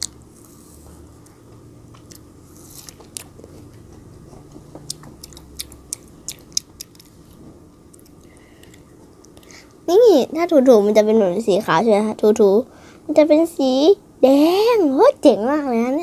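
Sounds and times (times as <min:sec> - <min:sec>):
child crunching frozen grapes: 0:01.9 - 0:04.2.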